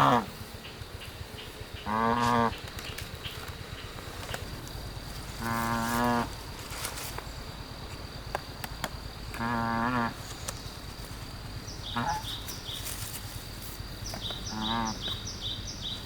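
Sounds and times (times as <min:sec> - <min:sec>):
farm animal calling: 0:00.0 - 0:00.4, 0:01.4 - 0:02.7, 0:05.2 - 0:06.5, 0:09.3 - 0:10.6, 0:11.6 - 0:13.2, 0:14.0 - 0:16.0.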